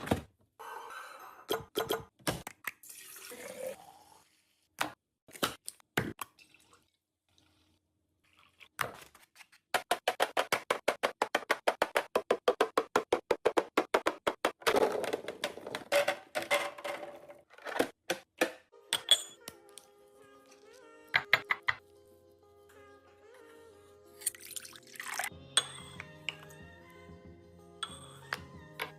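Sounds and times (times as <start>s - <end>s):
items knocking and clicking: 9.7s - 19.2s.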